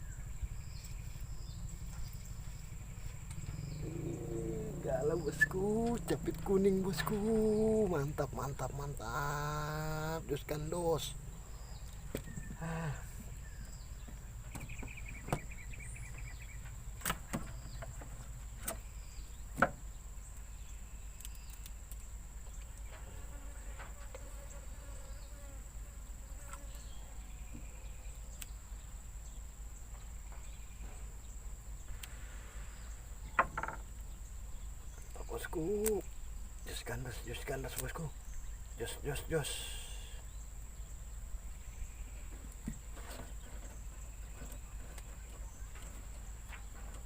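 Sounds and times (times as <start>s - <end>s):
insects buzzing: 0.0s - 47.0s.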